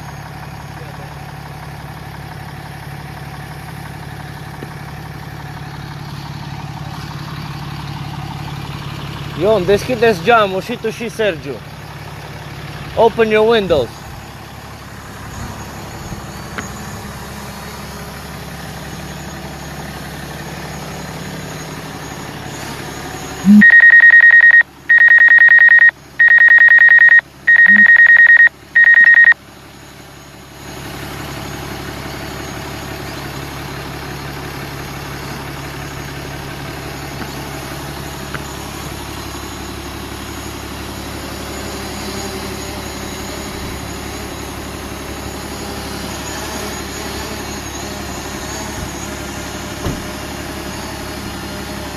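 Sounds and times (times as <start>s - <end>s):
diesel engine running: 0.0s - 51.9s
high electronic beeps: 23.4s - 29.4s.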